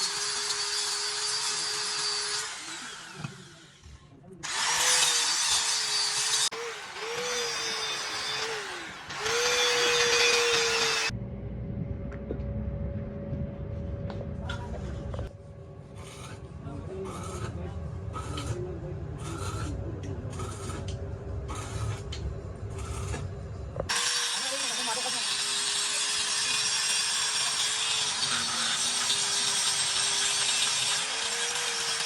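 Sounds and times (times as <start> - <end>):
electric power tool motor: 0.0 - 11.1, 23.9 - 32.0
low rumble: 11.1 - 23.9.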